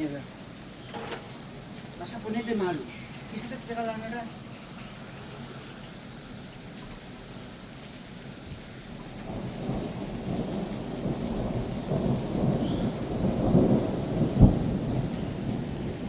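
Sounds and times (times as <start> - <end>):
thunder rumbling: 9.0 - 16.0
sharp thunder clap: 9.2 - 16.0.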